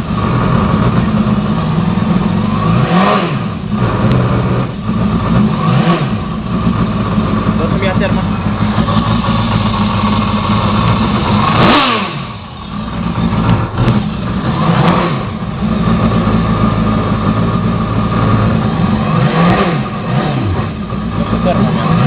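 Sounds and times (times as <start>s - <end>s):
jet ski engine revving: 0.0s - 22.0s.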